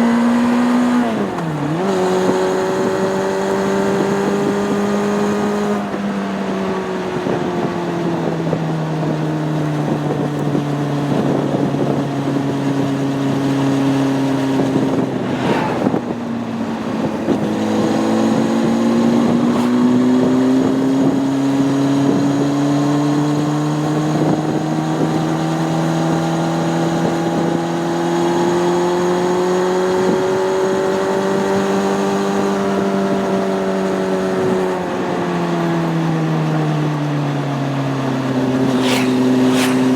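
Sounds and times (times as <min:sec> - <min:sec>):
motorcycle engine while riding: 0:00.0 - 0:39.9
wind rushing over microphone: 0:00.6 - 0:27.9, 0:38.0 - 0:39.9.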